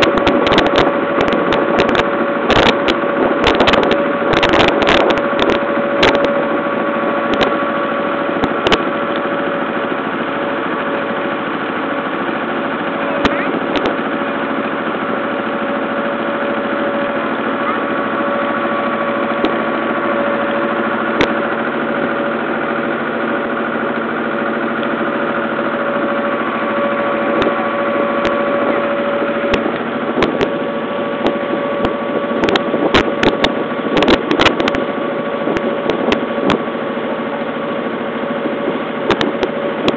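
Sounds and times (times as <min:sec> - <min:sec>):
boat motor humming: 0:00.0 - 0:39.9.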